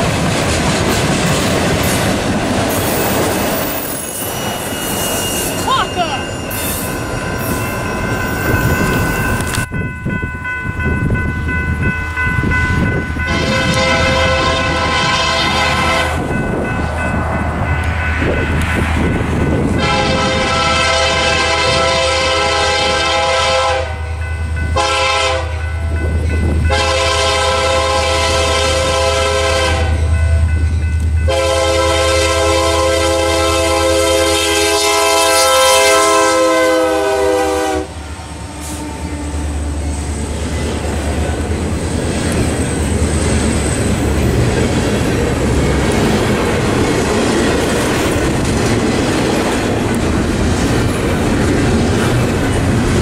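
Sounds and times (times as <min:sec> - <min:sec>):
freight cars clickety-clack: 0:00.0 - 0:07.8, 0:40.0 - 0:53.0
locomotive horn blasts: 0:13.2 - 0:16.3, 0:19.8 - 0:25.8, 0:26.6 - 0:30.2, 0:31.3 - 0:38.0.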